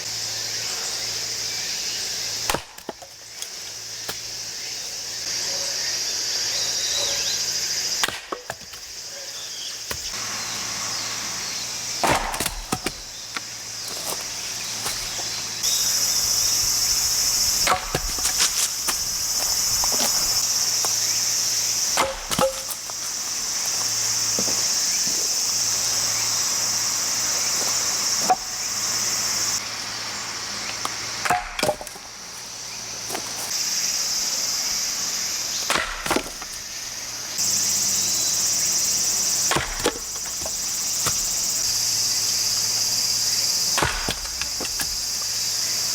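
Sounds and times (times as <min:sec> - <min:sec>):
high-pitched insect chorus: 0:00.0 - 0:45.9
axe striking firewood: 0:02.4 - 0:03.2, 0:08.0 - 0:08.9, 0:09.9 - 0:10.2, 0:12.0 - 0:21.1, 0:21.8 - 0:23.0, 0:31.2 - 0:32.0, 0:35.6 - 0:36.6, 0:39.4 - 0:43.0, 0:43.6 - 0:45.4
wood cracking and splitting: 0:12.0 - 0:21.0, 0:39.5 - 0:43.0, 0:43.7 - 0:45.4.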